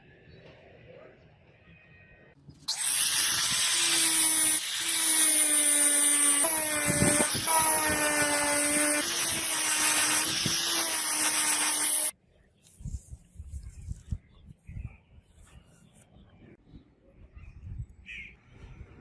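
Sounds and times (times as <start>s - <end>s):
power tool whining on steel: 2.7s - 12.1s.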